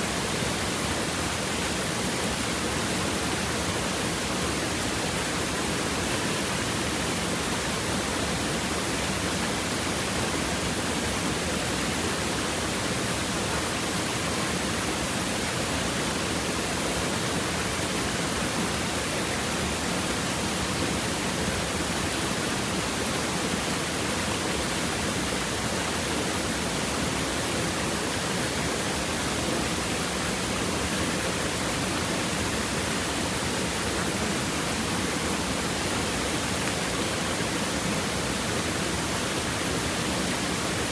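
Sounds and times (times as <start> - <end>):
stream water running over rocks: 0.0 - 40.9.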